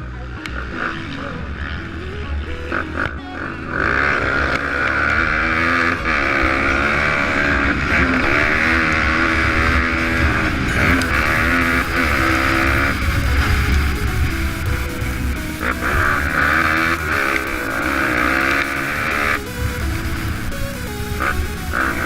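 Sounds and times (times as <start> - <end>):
motorbike engine revving: 0.0 - 22.0
steady rushing hiss: 6.8 - 22.0.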